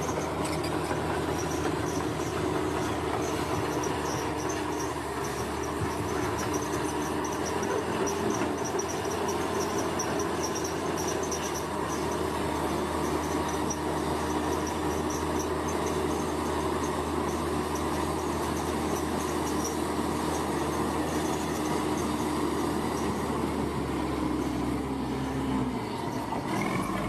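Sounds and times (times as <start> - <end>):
heavy machinery engine drone: 0.0 - 27.0
insects chirping trill: 1.3 - 23.6.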